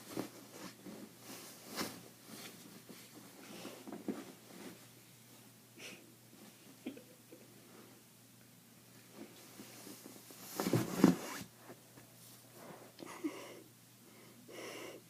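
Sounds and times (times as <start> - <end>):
rustling: 0.0 - 5.5, 8.9 - 13.0
person breathing softly: 12.5 - 15.0.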